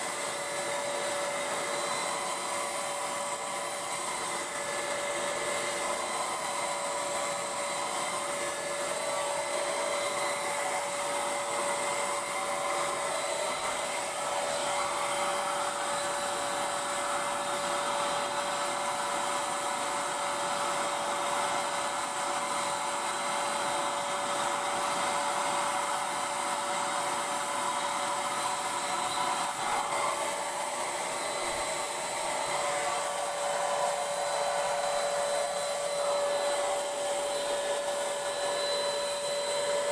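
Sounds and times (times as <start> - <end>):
paint sprayer motor whine: 0.0 - 39.9.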